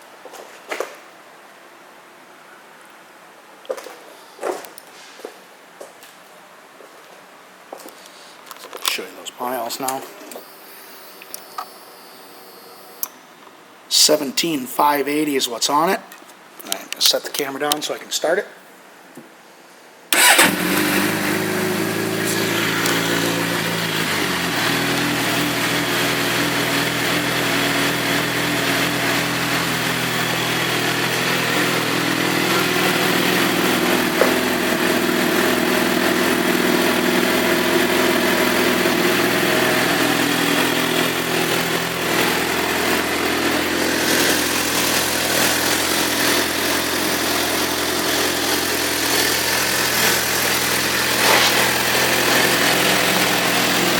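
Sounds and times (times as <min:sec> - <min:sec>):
motorcycle engine starting and idling: 0:20.1 - 0:53.9.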